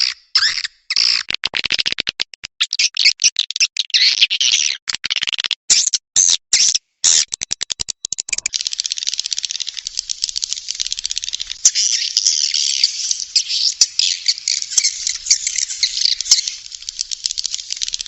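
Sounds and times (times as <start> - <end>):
bird chirps and trills: 7.2 - 18.0
sharp clicks: 7.2 - 18.0.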